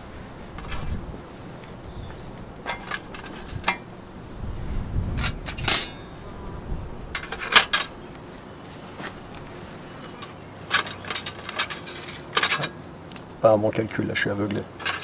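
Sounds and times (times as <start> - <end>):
metal cookware clinking: 5.6 - 6.5
short metallic ring: 5.6 - 6.6.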